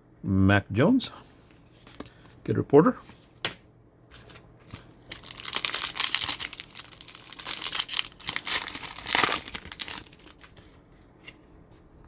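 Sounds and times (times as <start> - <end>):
plastic wrapper crinkling and tearing: 4.7 - 11.1.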